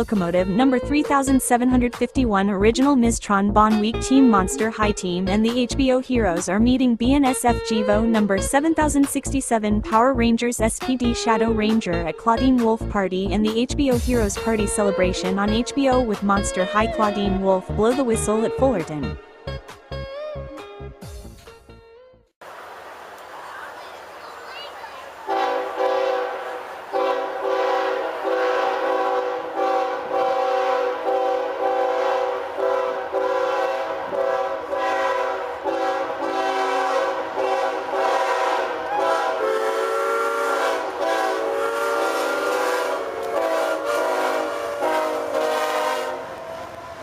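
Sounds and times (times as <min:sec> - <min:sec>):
steam chime whistle blasts: 0:27.0 - 0:46.2.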